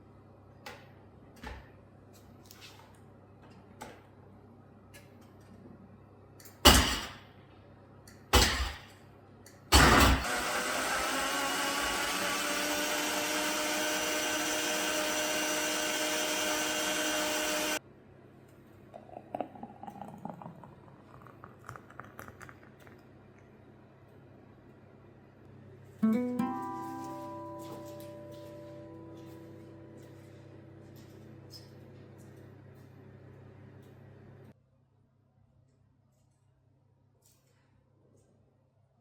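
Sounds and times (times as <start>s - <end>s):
kitchen appliance motor: 9.8s - 17.8s.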